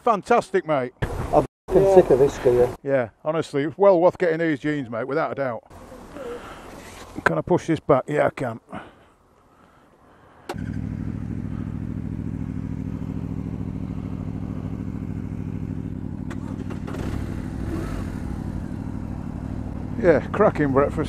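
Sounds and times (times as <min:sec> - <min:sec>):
motorcycle engine starting and idling: 0:10.4 - 0:21.0.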